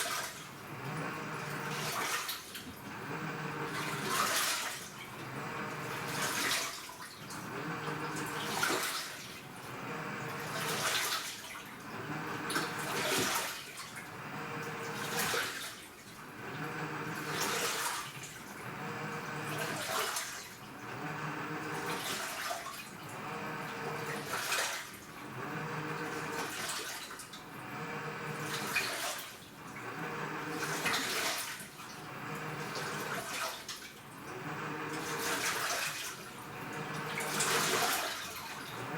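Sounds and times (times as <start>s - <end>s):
motor hum: 0.0s - 38.9s
washing machine agitating: 0.0s - 38.9s
water sloshing: 3.7s - 9.4s, 34.9s - 38.9s.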